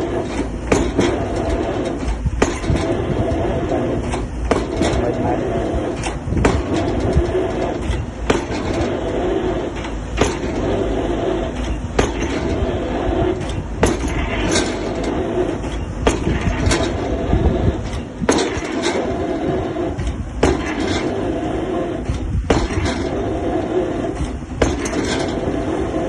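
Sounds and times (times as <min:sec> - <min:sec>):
diesel engine running: 0:00.0 - 0:26.0
drop hammer striking concrete pile: 0:00.3 - 0:01.2, 0:07.8 - 0:08.8, 0:11.6 - 0:12.5, 0:15.6 - 0:16.9, 0:20.4 - 0:21.2, 0:22.5 - 0:23.1, 0:24.6 - 0:25.3.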